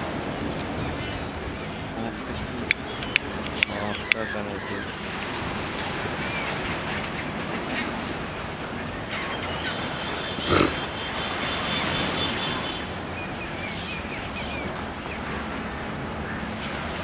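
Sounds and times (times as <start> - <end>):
sea surf: 0.0 - 17.0
wind: 0.0 - 17.0
small birds chirping: 2.4 - 6.7, 9.2 - 14.7.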